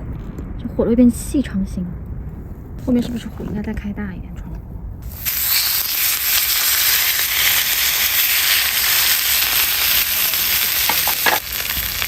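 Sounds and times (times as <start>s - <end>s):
fire crackling: 5.0s - 12.0s
wood fire hissing: 5.0s - 12.0s.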